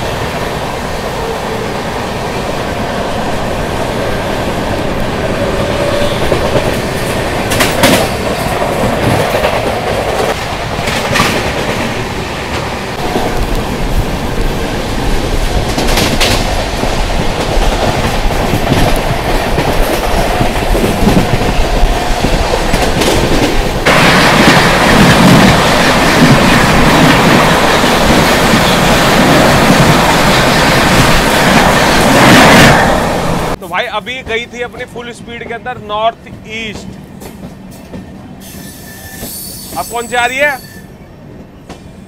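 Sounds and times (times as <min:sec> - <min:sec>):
train rumbling on track: 0:00.0 - 0:42.0
wheels clacking over rail joints: 0:05.8 - 0:34.8.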